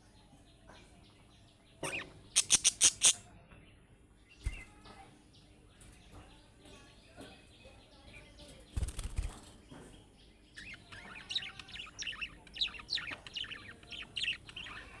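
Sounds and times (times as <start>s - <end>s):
budgerigars chirping: 1.8s - 3.2s, 10.6s - 15.0s
wings flapping: 8.7s - 9.6s.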